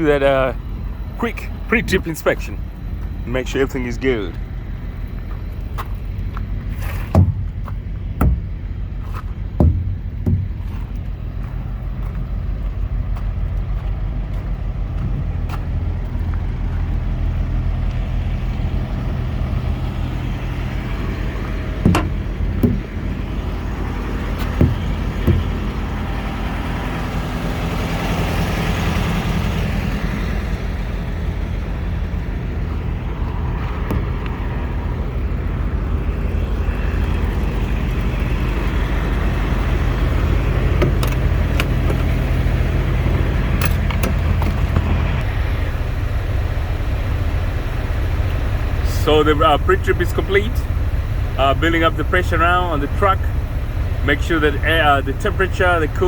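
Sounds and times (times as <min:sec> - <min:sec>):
diesel engine idling: 0:00.0 - 0:56.0
sharp knocks: 0:07.1 - 0:08.6, 0:09.6 - 0:11.0, 0:21.8 - 0:23.0, 0:24.4 - 0:25.8, 0:33.8 - 0:34.3.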